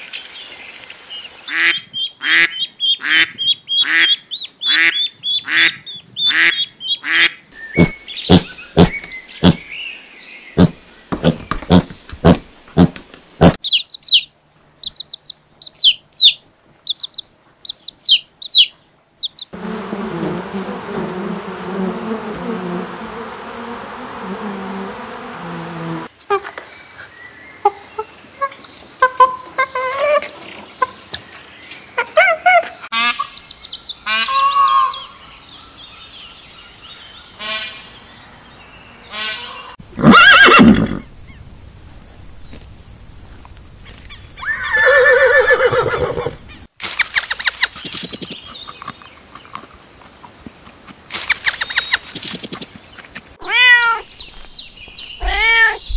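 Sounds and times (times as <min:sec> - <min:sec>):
piglets squeaking: 0:07.8 - 0:09.6, 0:27.7 - 0:31.0
monkeys squeaky calls: 0:27.6 - 0:31.3
horse whinnying: 0:40.0 - 0:41.0, 0:44.4 - 0:46.4.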